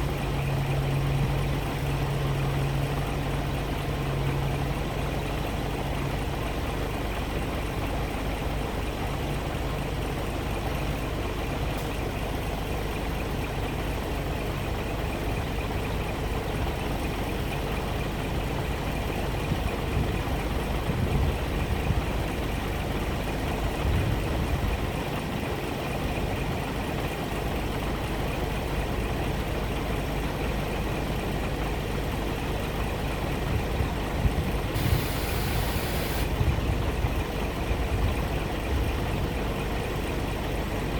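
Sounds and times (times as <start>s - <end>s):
truck diesel engine idling: 34.8s - 36.7s.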